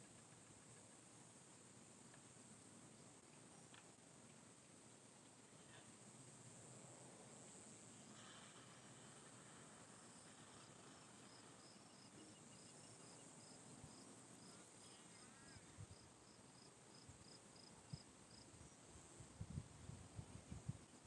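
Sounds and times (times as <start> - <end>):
high insect drone: 5.6 - 19.3.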